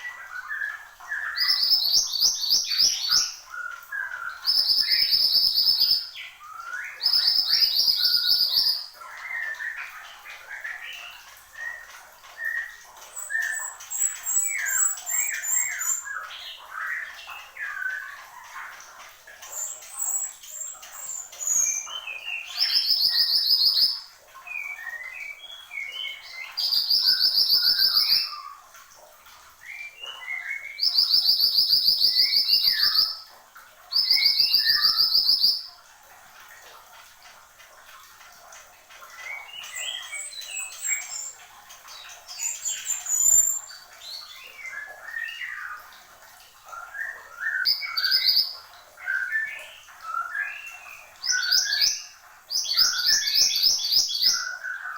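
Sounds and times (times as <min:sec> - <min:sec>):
songbird chirping and whistling: 0:24.6 - 0:28.4, 0:29.8 - 0:33.2, 0:42.4 - 0:45.7.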